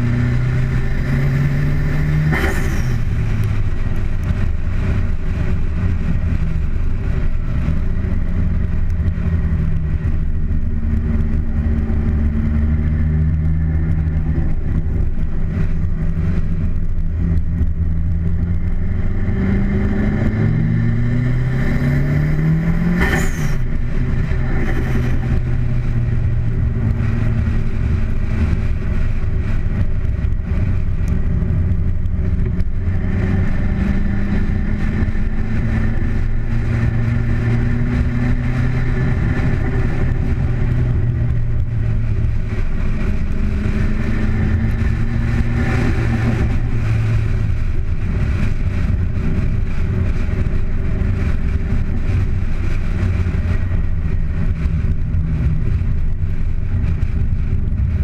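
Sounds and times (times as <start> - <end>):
car engine accelerating: 0.0 - 58.0
heavy wind noise: 0.0 - 58.0
road noise: 0.0 - 58.0.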